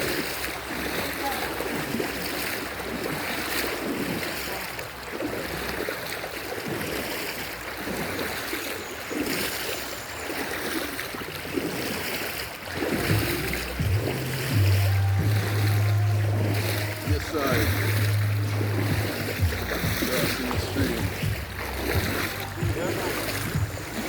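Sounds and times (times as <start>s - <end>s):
stream flowing over rocks: 0.0s - 24.0s
low steady hum: 13.0s - 24.0s.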